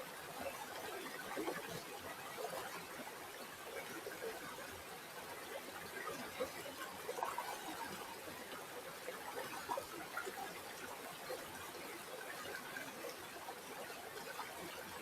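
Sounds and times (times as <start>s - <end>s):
river water babbling: 0.0s - 15.0s.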